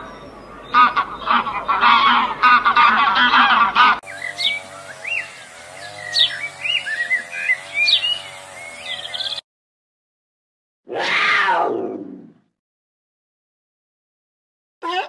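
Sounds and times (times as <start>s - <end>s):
geese honking: 0.6s - 9.3s
sweeping bird chirps: 4.0s - 9.4s.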